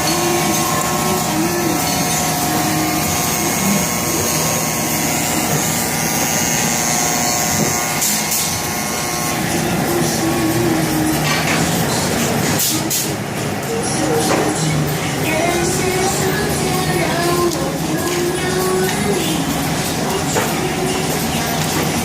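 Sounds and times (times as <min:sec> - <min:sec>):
steady machine tones: 0:00.0 - 0:12.6
industrial machine running: 0:00.0 - 0:22.0.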